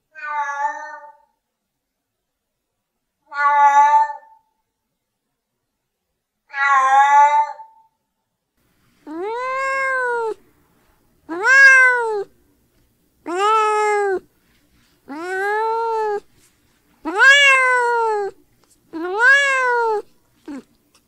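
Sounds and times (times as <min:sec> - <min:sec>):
cat meowing: 0:00.1 - 0:01.3, 0:09.1 - 0:10.4, 0:11.3 - 0:12.3, 0:13.3 - 0:14.3, 0:15.1 - 0:16.3, 0:17.0 - 0:18.4, 0:19.0 - 0:20.7.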